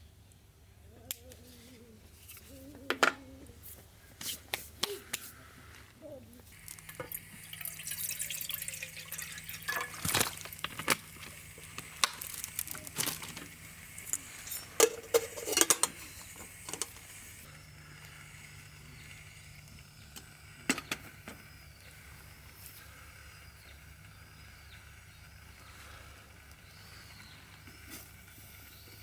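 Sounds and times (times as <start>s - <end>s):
water splashing and dripping: 6.6s - 11.1s.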